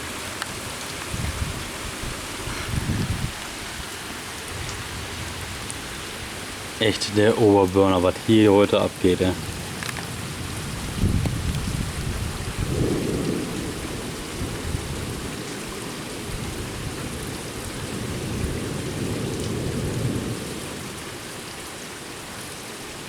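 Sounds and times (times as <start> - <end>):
steady rain: 0.0 - 23.0
low rolling thunder: 1.1 - 7.4, 8.9 - 21.0.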